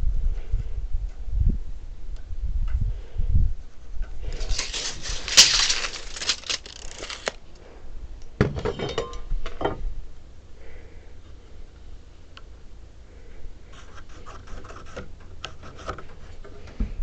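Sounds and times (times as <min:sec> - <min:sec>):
scraping and rustling: 0:04.3 - 0:07.4.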